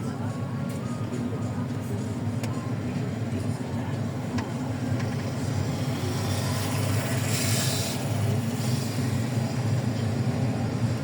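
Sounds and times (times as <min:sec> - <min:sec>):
vehicle rumble: 0:00.0 - 0:11.0.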